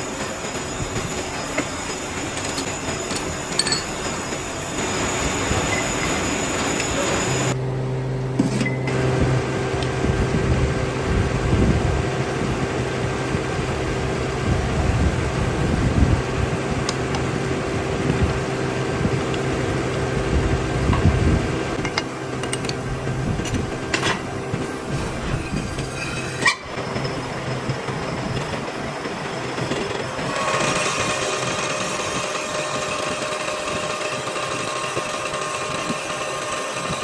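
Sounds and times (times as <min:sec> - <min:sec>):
workshop machinery humming: 0:00.0 - 0:37.0.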